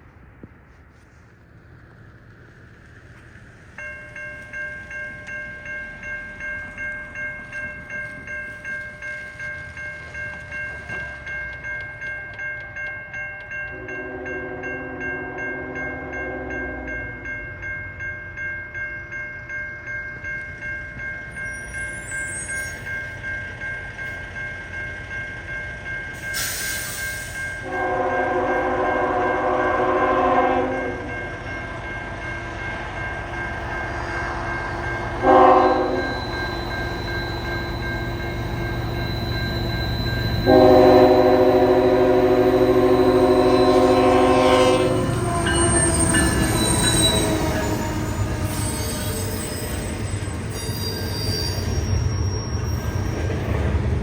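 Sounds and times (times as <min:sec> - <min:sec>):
level crossing bell ringing: 0:03.9 - 0:50.0
locomotive horn blasts: 0:13.8 - 0:17.0, 0:27.7 - 0:31.1, 0:35.2 - 0:36.1, 0:40.4 - 0:45.9
locomotive rumble: 0:20.5 - 0:54.0.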